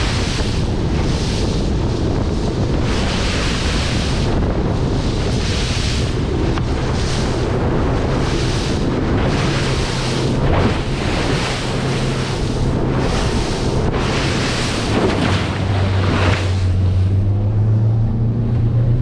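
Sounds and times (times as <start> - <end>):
low engine hum: 0.0 - 19.0
waves washing around boat: 0.0 - 19.0
wind buffeting microphone: 0.0 - 19.0.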